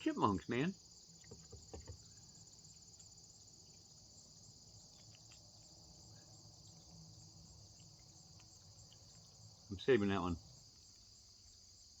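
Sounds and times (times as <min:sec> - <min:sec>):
faint insect trilling: 0:00.0 - 0:12.0.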